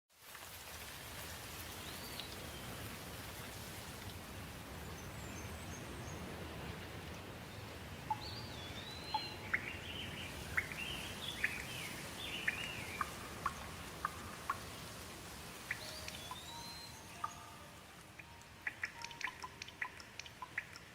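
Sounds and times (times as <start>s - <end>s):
rain falling: 0.1s - 20.9s
birds chirping: 4.8s - 20.9s.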